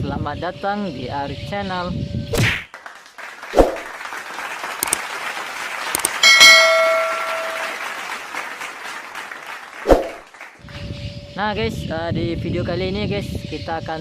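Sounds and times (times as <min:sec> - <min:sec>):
bell-like chime: 0:06.2 - 0:07.8.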